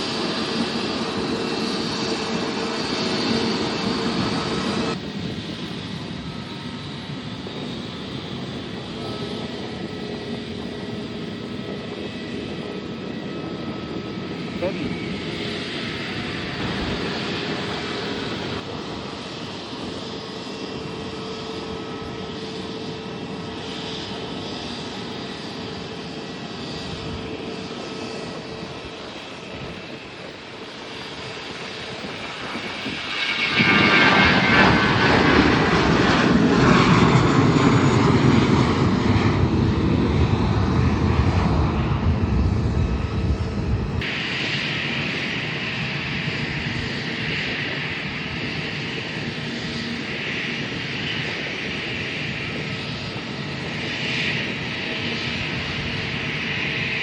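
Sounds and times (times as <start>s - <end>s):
airplane engines passing: 0.0s - 57.0s
jet engine whine: 0.0s - 57.0s
deep engine rumble: 34.5s - 44.0s.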